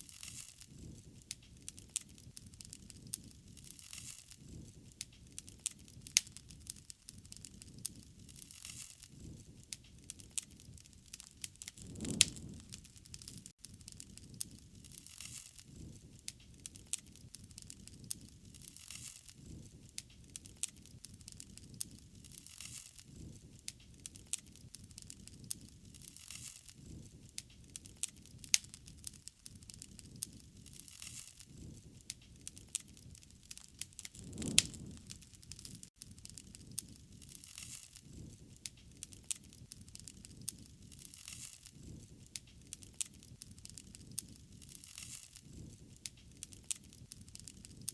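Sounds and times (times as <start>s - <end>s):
wood fire crackling and popping: 0.0s - 47.9s.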